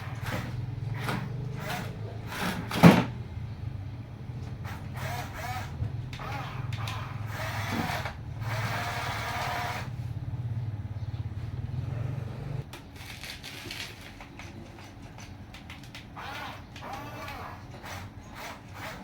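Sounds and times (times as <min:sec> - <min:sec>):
toy electric motors whirring: 0:00.0 - 0:03.1, 0:04.6 - 0:10.0, 0:12.6 - 0:19.0.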